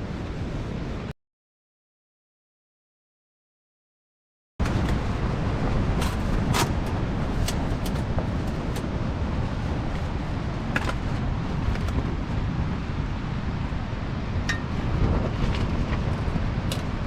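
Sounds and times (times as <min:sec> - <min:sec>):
wind buffeting microphone: 0:04.6 - 0:17.0.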